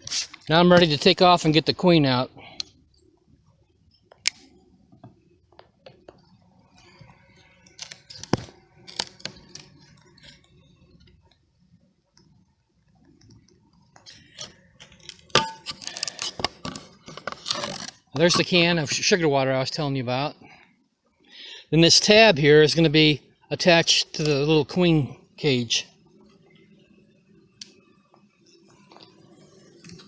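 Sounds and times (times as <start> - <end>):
clicks and knocks of wood and metal: 7.7 - 10.4.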